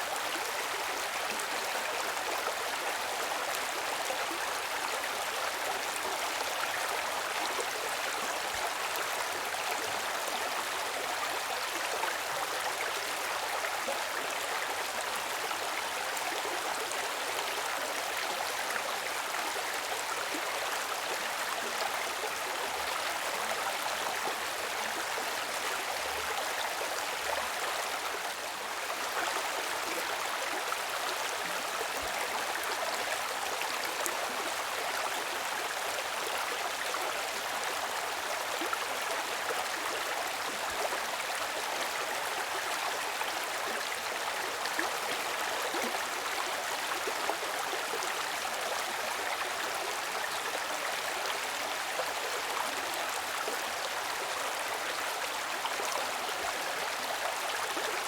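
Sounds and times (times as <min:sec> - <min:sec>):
stream running water: 0:00.0 - 0:58.0.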